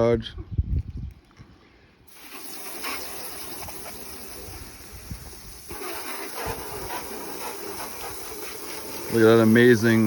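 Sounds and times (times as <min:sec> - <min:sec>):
hose spraying water on car: 0:02.1 - 0:10.0.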